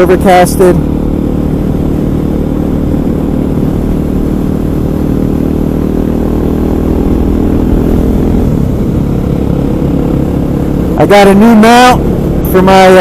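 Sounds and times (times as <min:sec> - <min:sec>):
motorcycle engine cruising: 0:00.0 - 0:13.0
wind noise on microphone: 0:01.2 - 0:11.0.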